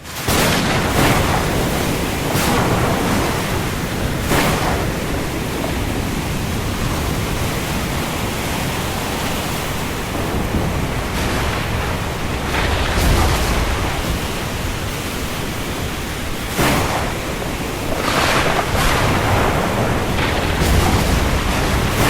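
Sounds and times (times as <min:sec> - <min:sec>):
heavy rain on sea: 0:00.0 - 0:22.0
water washing: 0:00.1 - 0:22.0.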